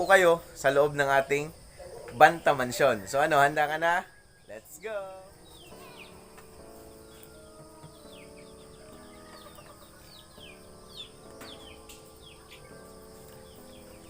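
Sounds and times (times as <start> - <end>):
high falling chirps: 0.0 - 14.0
background music of held chords: 4.8 - 14.0.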